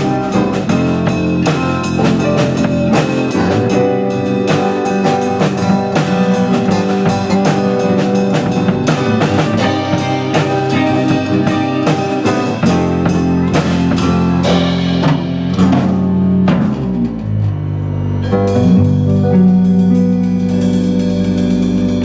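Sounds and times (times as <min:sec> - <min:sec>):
live rock band playing: 0:00.0 - 0:22.0
deep held bass note: 0:05.2 - 0:22.0.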